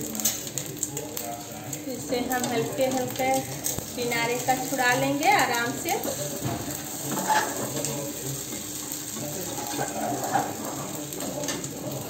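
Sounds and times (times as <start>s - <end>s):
batter sizzling in oil: 0.0s - 12.0s
metal spatula scraping a pan: 7.0s - 7.9s, 9.5s - 10.9s.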